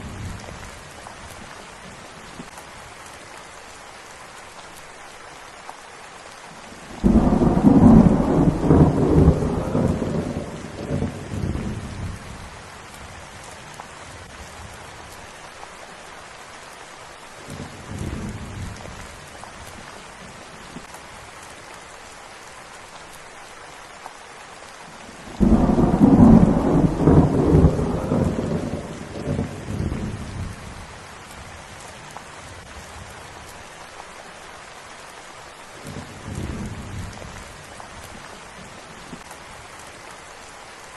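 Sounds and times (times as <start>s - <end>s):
steady rain: 0.0s - 40.9s
thunder rumbling: 7.0s - 12.5s, 25.3s - 30.9s.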